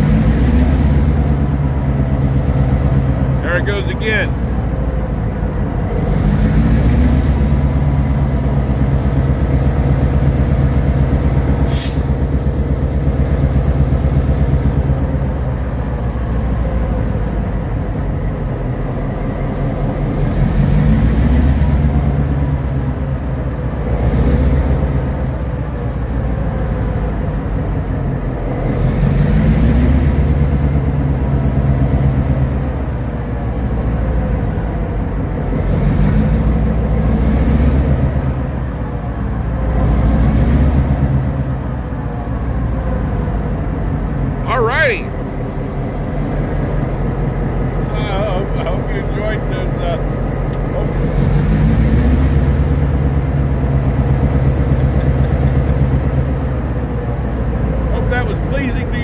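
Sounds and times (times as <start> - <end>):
diesel locomotive engine revving: 0.0 - 59.0
brief sharp hiss: 11.6 - 12.2.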